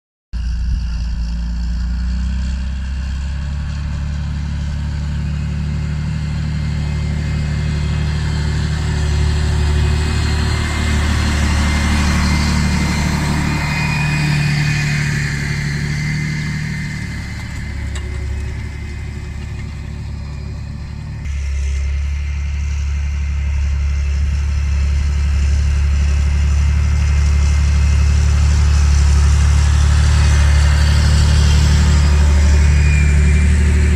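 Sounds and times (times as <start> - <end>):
tractor diesel engine under load: 0.4 - 33.9.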